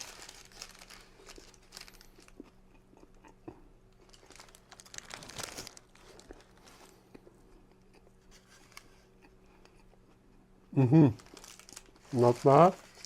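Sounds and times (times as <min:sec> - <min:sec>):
paper wrapper crinkling: 0:00.0 - 0:02.4, 0:03.9 - 0:07.0, 0:08.3 - 0:09.0, 0:11.1 - 0:13.0.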